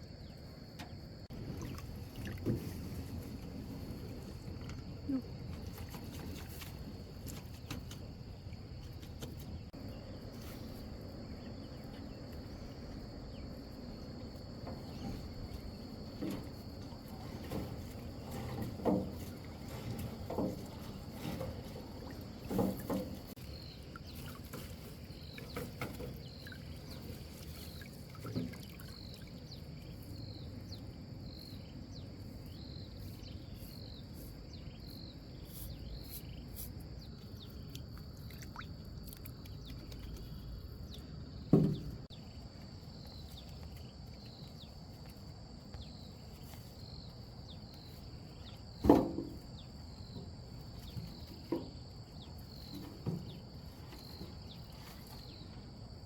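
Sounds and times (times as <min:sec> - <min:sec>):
knocks and splashes on water: 0:01.3 - 0:09.8, 0:14.5 - 0:30.4, 0:37.6 - 0:42.1.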